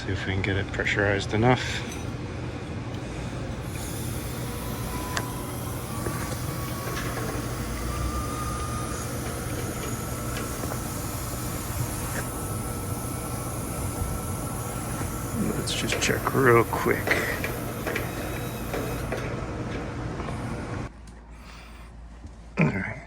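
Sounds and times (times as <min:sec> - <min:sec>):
gas hissing from regulator: 0:03.6 - 0:20.9.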